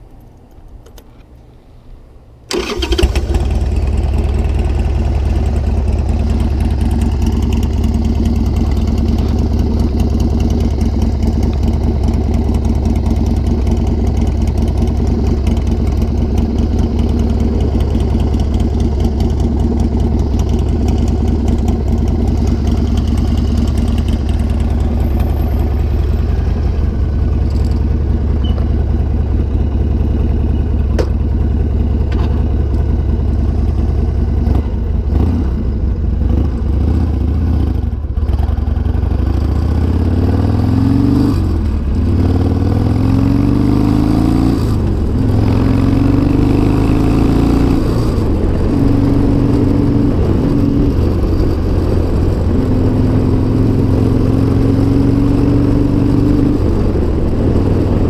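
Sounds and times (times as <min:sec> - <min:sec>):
motorcycle engine idling: 0:02.5 - 0:40.0
motorcycle engine starting: 0:02.5 - 0:58.0.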